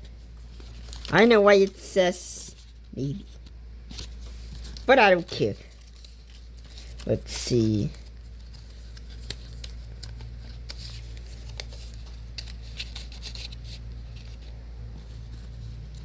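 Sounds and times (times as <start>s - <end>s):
paper rustling: 0.0s - 16.0s
paper clicks: 3.4s - 14.6s.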